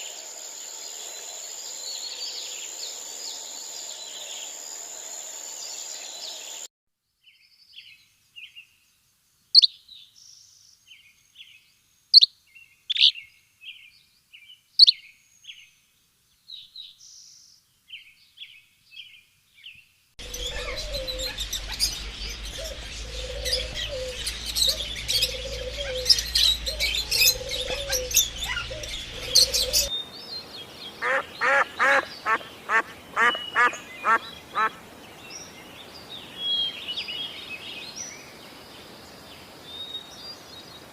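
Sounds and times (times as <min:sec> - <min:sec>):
birds chirping: 0:19.6 - 0:38.9
low hum: 0:20.2 - 0:29.9.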